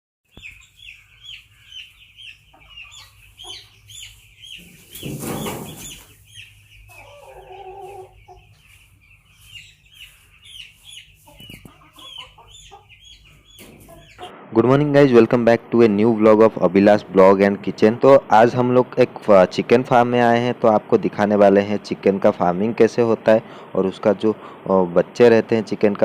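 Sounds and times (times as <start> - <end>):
chickens calling: 0.3 - 26.0.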